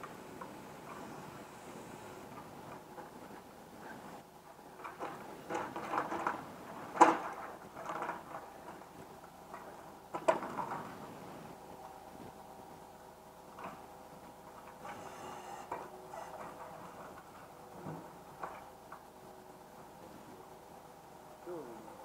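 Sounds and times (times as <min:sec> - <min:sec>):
steady machine hum: 0:00.0 - 0:05.5.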